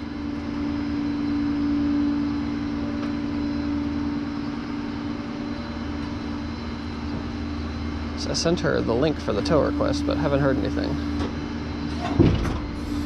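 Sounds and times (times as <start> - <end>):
low hum: 0.0 - 13.0
vehicle engine drone: 0.0 - 13.0.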